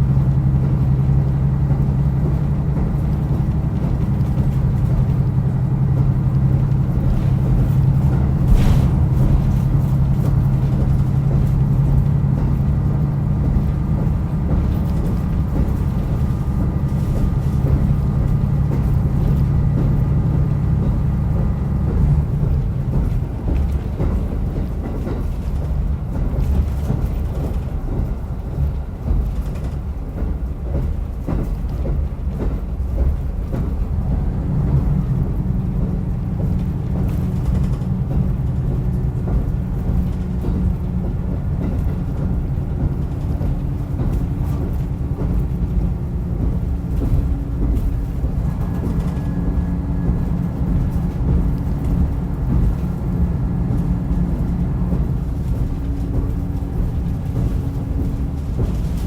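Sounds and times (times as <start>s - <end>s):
railcar engine and wheels rumbling: 0.0s - 59.0s.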